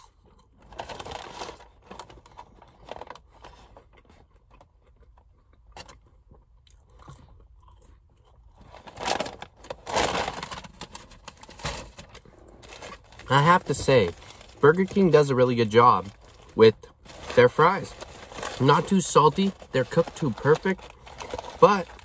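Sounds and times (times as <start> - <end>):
person chewing fries: 0.0 - 11.3.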